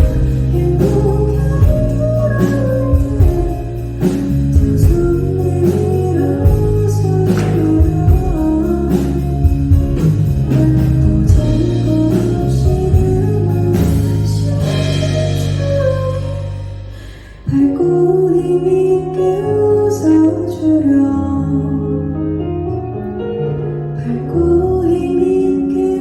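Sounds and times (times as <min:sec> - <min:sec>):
steady drum beat: 0:00.0 - 0:16.8
bass guitar: 0:00.0 - 0:26.0
guitar chords: 0:00.0 - 0:26.0.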